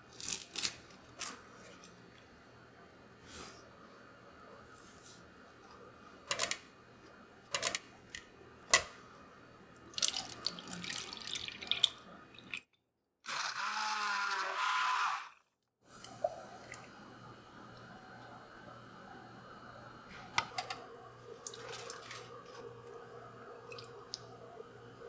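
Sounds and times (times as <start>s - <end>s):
water running into a sink: 9.7s - 12.6s, 20.1s - 25.0s.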